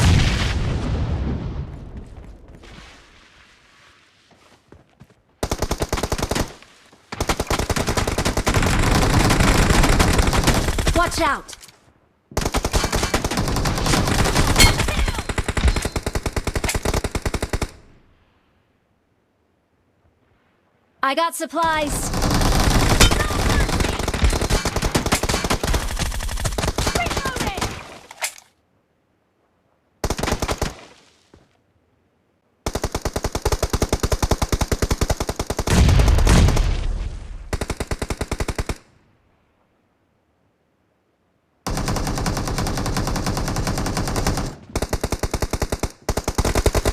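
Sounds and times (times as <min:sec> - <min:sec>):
video game automatic gunfire: 0:21.8 - 0:27.7, 0:41.7 - 0:46.9
automatic gunfire: 0:22.1 - 0:27.8.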